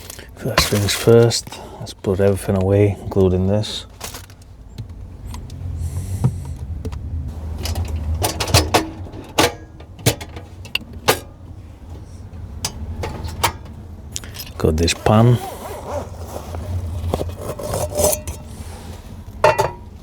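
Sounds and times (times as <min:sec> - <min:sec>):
low steady rumble: 0:00.0 - 0:20.0
gear knocking and rattling: 0:06.2 - 0:11.5.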